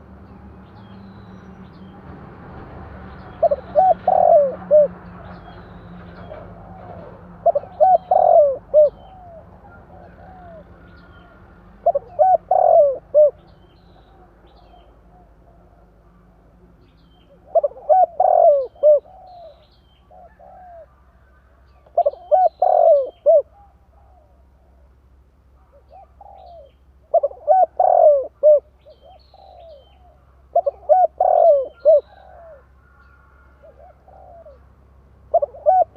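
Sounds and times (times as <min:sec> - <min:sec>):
dove cooing: 0:03.4 - 0:05.1, 0:06.2 - 0:15.9, 0:17.2 - 0:24.9, 0:25.6 - 0:35.9.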